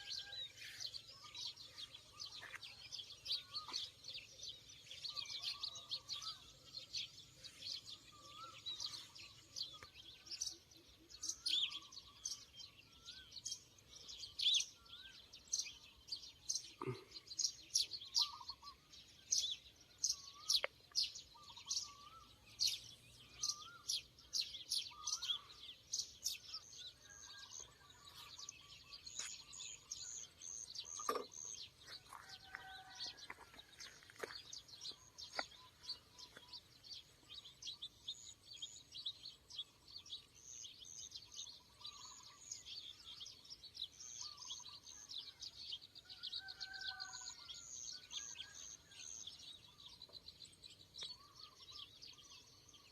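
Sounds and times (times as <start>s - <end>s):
birds chirping: 0.0s - 52.9s
birds warbling: 16.5s - 18.9s.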